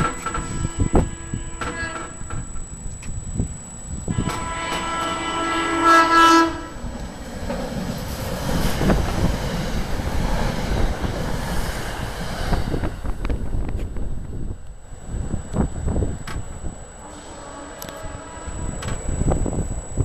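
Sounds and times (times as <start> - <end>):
train horn: 0.0 - 2.6, 4.1 - 7.0, 17.0 - 19.6.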